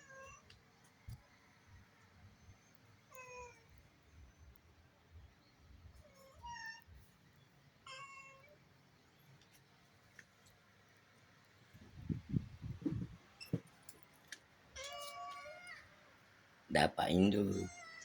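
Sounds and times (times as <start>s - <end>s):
cat meowing faintly: 0.0s - 0.5s, 6.0s - 7.0s, 7.8s - 8.6s, 14.8s - 16.0s.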